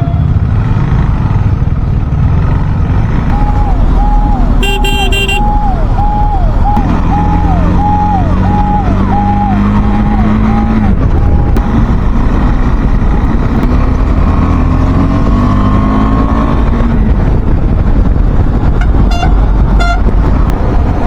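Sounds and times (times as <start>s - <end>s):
motorcycle engine running: 0.0s - 21.0s
wind noise: 3.0s - 21.0s
electronic alarm falling beep: 3.4s - 10.7s.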